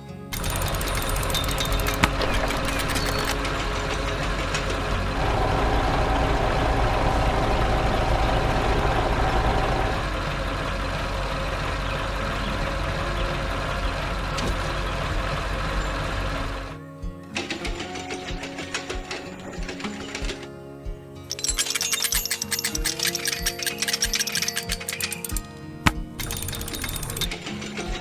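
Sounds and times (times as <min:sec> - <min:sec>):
heavy vehicle engine running: 0:00.3 - 0:16.8, 0:25.3 - 0:28.0.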